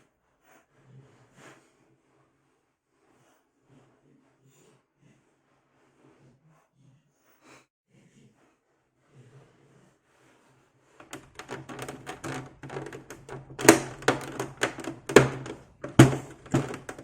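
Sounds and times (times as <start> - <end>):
loud plastic snaps: 11.0 - 17.0
plastic clicks and scrapes: 11.0 - 17.0.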